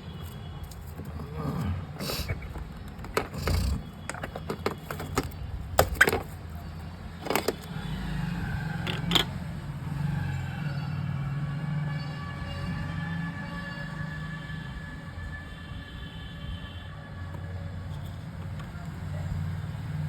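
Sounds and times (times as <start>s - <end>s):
clicks and knocks of tools: 2.3s - 6.5s, 7.2s - 7.8s, 8.8s - 9.4s.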